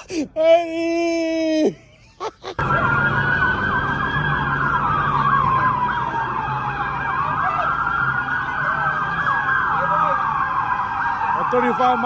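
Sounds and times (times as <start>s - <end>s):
police sirens wailing and yelping: 2.6s - 12.0s.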